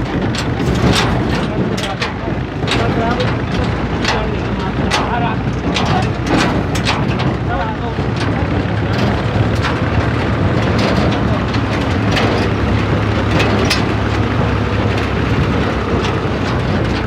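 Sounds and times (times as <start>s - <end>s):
clicks and rattles: 0.0s - 17.0s
tractor engine running: 0.0s - 17.0s.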